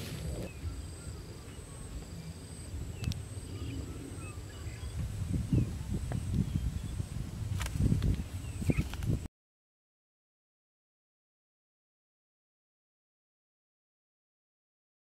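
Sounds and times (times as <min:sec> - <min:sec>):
insect buzz with pulsing trill: 0:00.0 - 0:07.4
bird chirps: 0:00.3 - 0:07.0.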